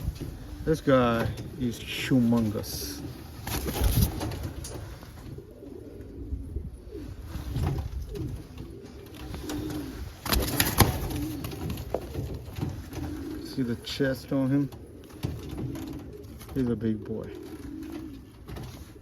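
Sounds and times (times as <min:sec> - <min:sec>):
pigeons cooing: 0:00.0 - 0:19.0
wing flaps: 0:02.3 - 0:05.6, 0:07.2 - 0:13.7.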